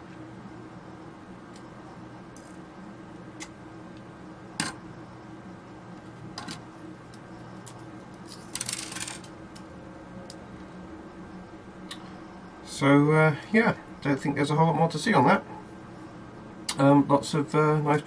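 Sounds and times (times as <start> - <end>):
small metal parts clicking: 7.6 - 9.3.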